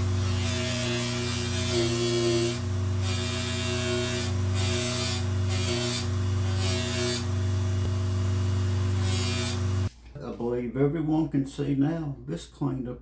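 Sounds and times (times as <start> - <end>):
knife blade scraping on polisher: 0.0 - 7.4
power polishing tool motor hum: 0.0 - 9.9.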